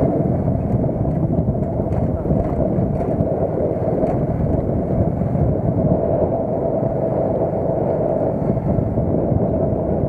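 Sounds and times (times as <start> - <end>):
wind noise on microphone: 0.0 - 10.0.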